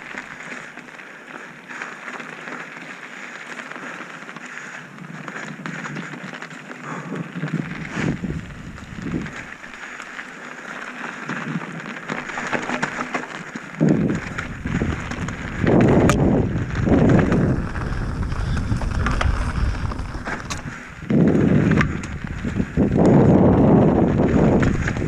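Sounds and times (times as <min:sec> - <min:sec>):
mountain bike clicks: 0:00.0 - 0:25.0
wind buffeting microphone: 0:07.6 - 0:09.6, 0:13.7 - 0:25.0.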